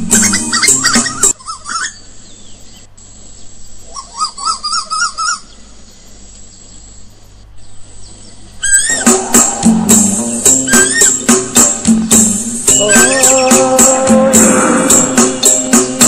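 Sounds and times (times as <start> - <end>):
bird warbling call: 8.6 - 11.6, 12.7 - 15.4.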